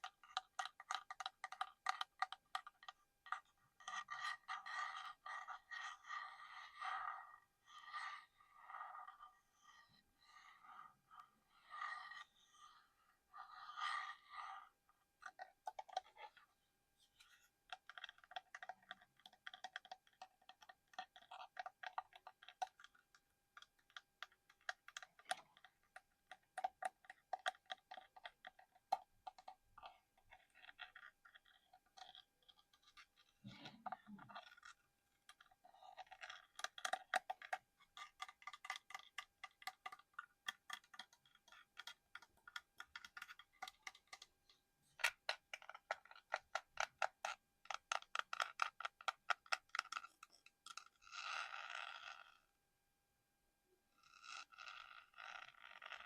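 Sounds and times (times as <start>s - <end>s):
fingernails tapping and scratching: 0.0s - 6.6s, 17.2s - 44.4s.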